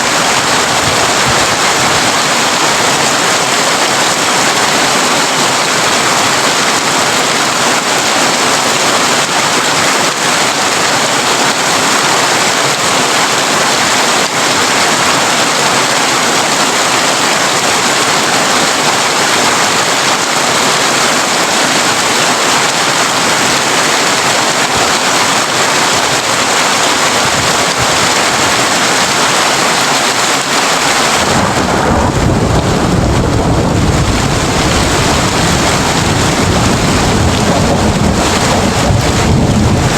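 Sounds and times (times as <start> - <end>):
heavy rain on a tin roof: 0.0 - 39.9
thunder rumble: 31.0 - 39.9.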